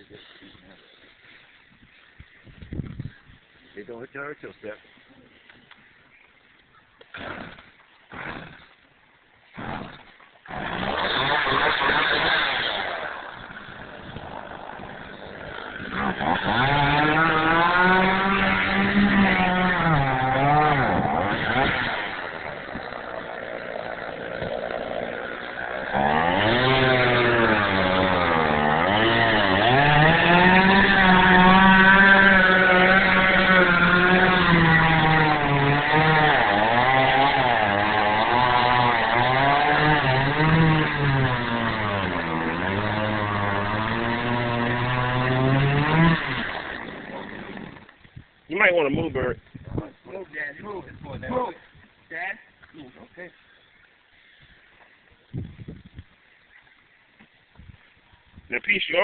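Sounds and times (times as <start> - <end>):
gas chainsaw running at high revs: 9.6 - 47.9.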